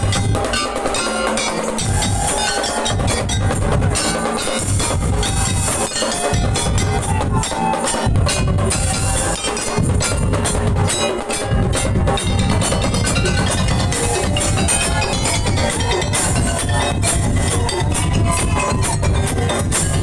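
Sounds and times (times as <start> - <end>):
percussion ensemble playing: 0.0 - 20.0
ringing metal percussion: 0.0 - 20.0
wooden knocking percussion: 0.0 - 20.0
deep bass drum: 1.8 - 4.1, 8.1 - 20.0.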